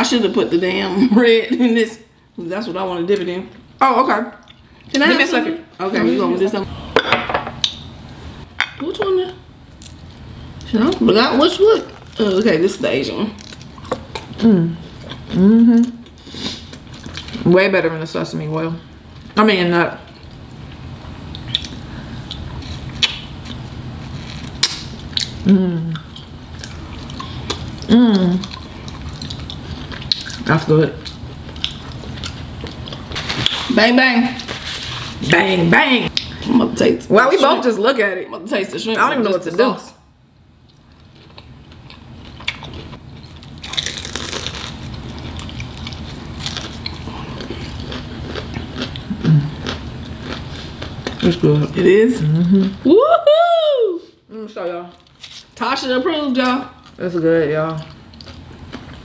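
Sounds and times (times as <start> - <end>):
chewing crunchy food: 13.4 - 17.4, 20.1 - 33.7, 40.6 - 51.4, 57.6 - 59.0
person humming: 14.4 - 16.0, 25.4 - 26.0
crunchy chewing: 40.6 - 51.3.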